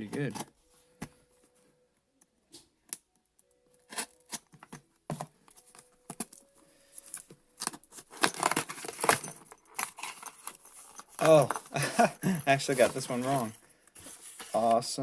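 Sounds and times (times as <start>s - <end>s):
packing tape tearing off cardboard: 3.8s - 6.4s, 7.1s - 14.7s.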